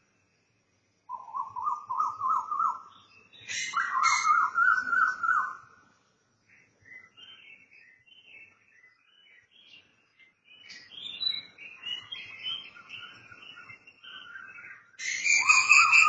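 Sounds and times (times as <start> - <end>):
birds chirping: 1.1 - 5.7, 6.5 - 16.0
bird repeated rising notes: 15.0 - 16.0.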